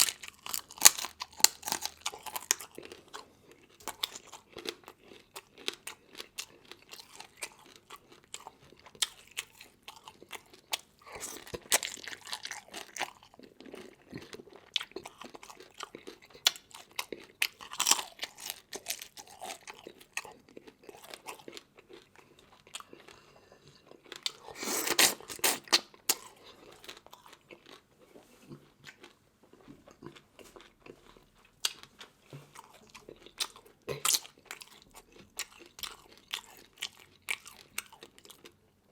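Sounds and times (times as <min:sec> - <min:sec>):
person chewing crunchy food: 0:00.0 - 0:38.9.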